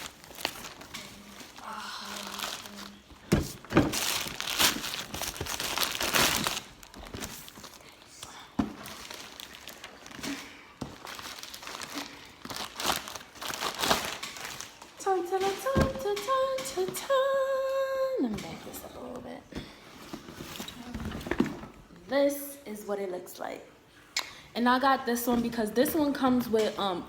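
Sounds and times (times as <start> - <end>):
packaging crinkling: 0.0 - 8.0, 8.8 - 15.0.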